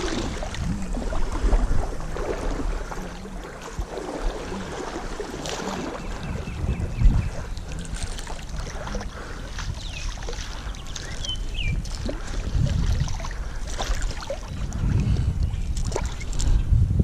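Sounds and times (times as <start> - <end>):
water sloshing and splashing: 0.0 - 16.6
wind buffeting microphone: 0.0 - 17.0.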